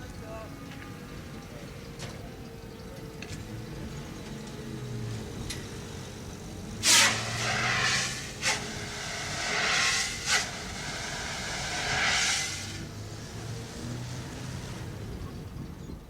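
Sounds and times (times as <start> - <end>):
vehicle engine hum: 0.0 - 16.0
sharp short noise bursts: 6.8 - 12.8.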